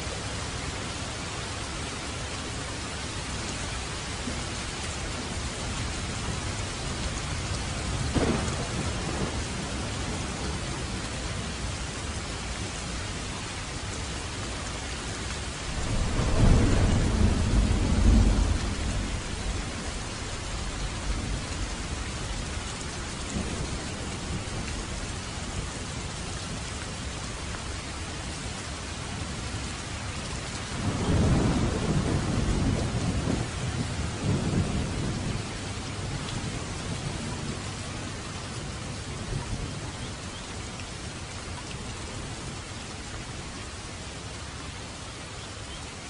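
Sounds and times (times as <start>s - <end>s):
heavy rain on road and trees: 0.0s - 46.0s
thunder rolling: 8.0s - 10.8s, 15.7s - 22.0s.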